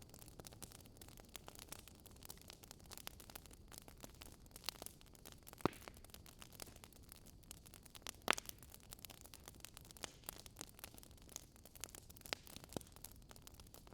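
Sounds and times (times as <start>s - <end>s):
wood fire crackling: 0.0s - 13.9s
fire pops: 3.1s - 6.9s, 7.5s - 9.4s.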